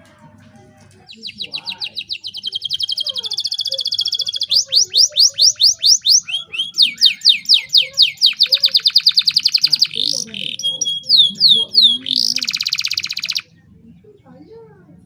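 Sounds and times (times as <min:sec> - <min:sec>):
canary singing trills: 0:01.0 - 0:14.4.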